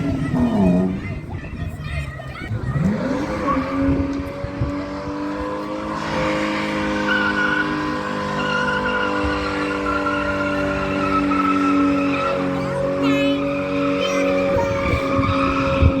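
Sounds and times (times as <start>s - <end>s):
car engine at high revs: 0.0s - 16.0s
tyres squealing: 5.7s - 16.0s.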